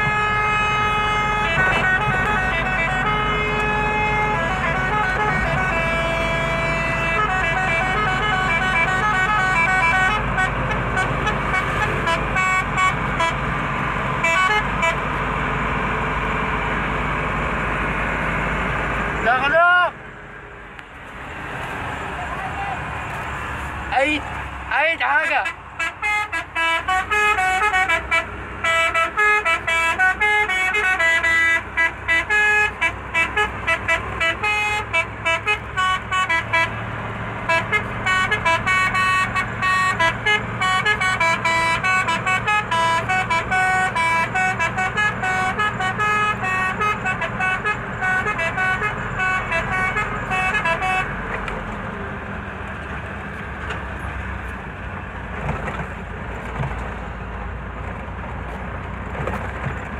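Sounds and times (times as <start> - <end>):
musical truck horn melody: 0.0 - 13.6, 14.2 - 15.2, 25.2 - 51.2
truck engine running: 0.0 - 59.9.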